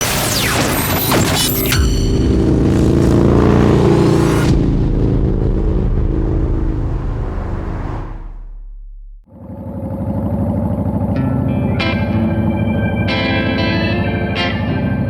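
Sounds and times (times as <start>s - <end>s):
motorcycle engine rumbling: 1.8s - 15.0s.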